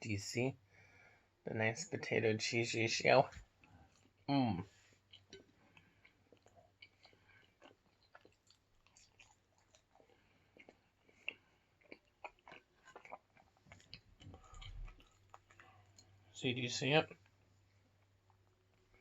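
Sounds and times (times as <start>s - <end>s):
wet chewing mouth sounds: 5.0s - 16.3s.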